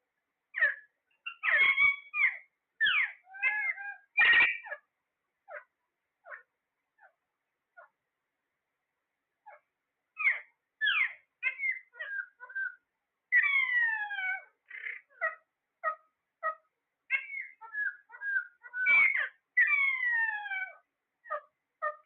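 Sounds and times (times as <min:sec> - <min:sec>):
parrot chirps and whistles: 0:00.6 - 0:04.8, 0:10.2 - 0:22.0.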